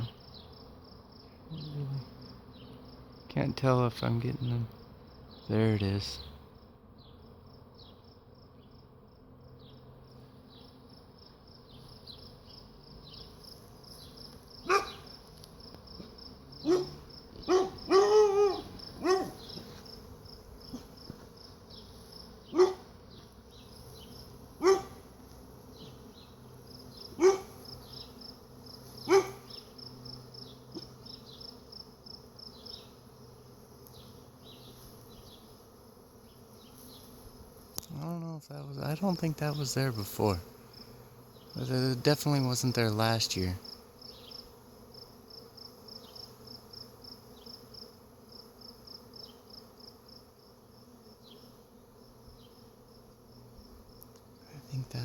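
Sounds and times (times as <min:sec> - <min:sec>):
bee swarm buzzing: 0:00.0 - 0:55.0
high insect chirring: 0:00.0 - 0:55.0
dog barking: 0:14.6 - 0:15.1, 0:16.6 - 0:19.4, 0:22.5 - 0:22.9, 0:24.6 - 0:25.0, 0:27.2 - 0:27.6, 0:29.1 - 0:29.5.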